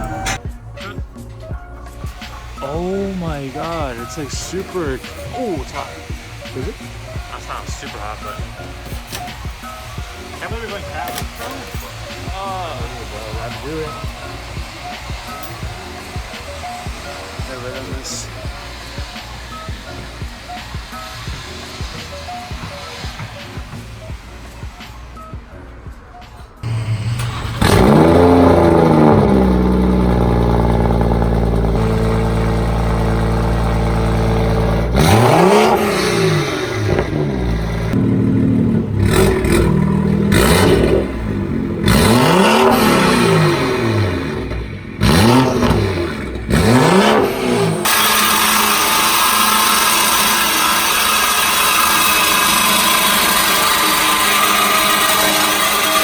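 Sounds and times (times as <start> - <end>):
car engine revving and idling: 0.0 - 56.0
steady rushing noise: 1.1 - 26.7.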